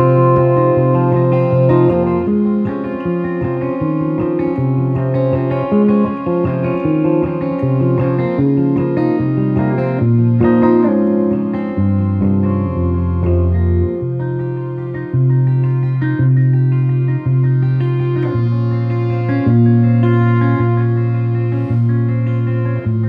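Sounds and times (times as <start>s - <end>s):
sustained harmonium chords: 0.0s - 5.7s, 17.2s - 23.0s
picked electric guitar melody: 0.0s - 23.0s.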